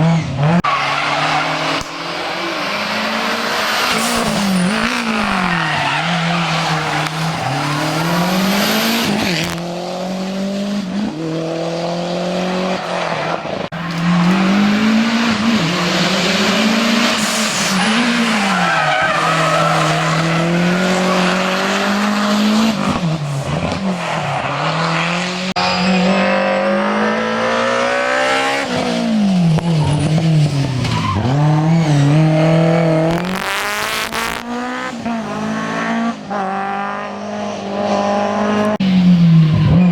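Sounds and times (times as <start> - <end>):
rally car engine revving: 0.0 - 39.9
tyre squeal: 0.6 - 2.8, 3.6 - 9.5, 17.2 - 22.2, 29.6 - 31.6.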